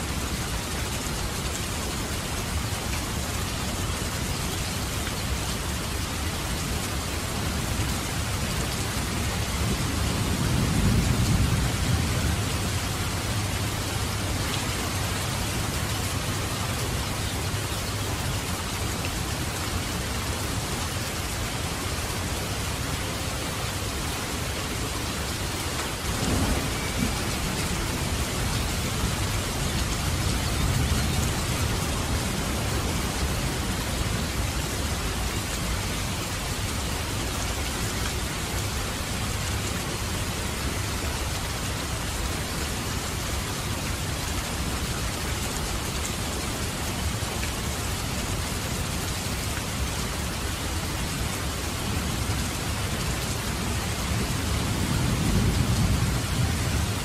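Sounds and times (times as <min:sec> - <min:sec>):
rain dripping from roof: 0:00.0 - 0:57.0
thunder rumbling: 0:26.0 - 0:34.7.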